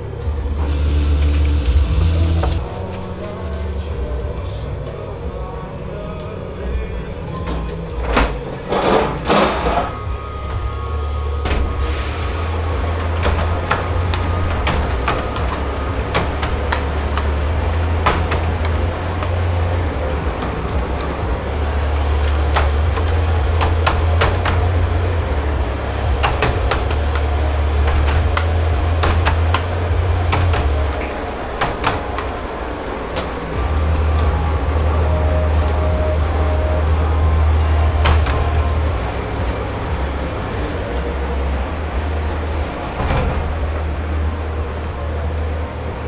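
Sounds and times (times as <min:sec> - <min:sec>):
low machinery drone: 0:00.0 - 0:46.0
dishes and pans clattering: 0:07.5 - 0:10.1.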